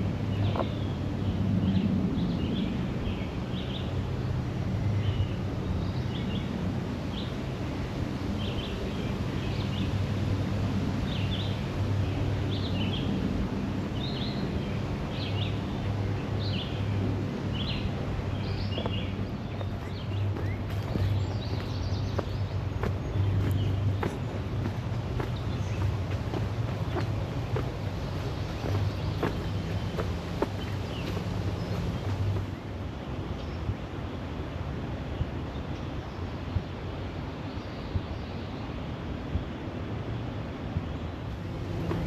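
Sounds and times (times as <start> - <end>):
small songbirds chirping: 0.0 - 34.0, 41.0 - 42.0
steady low hum: 11.8 - 33.1, 41.3 - 42.0.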